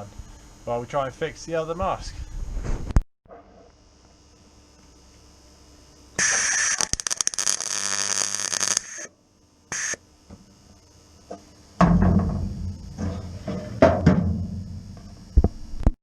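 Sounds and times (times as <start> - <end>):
welder crackling and hissing: 3.6 - 11.6.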